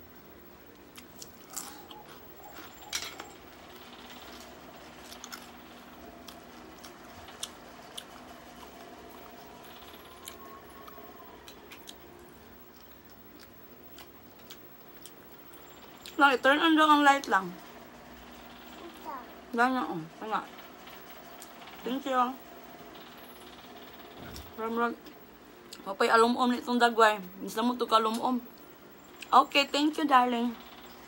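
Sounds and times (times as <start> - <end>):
person chewing: 0.7 - 2.9, 5.0 - 5.5, 6.2 - 16.2
crunchy clicks: 0.7 - 16.2.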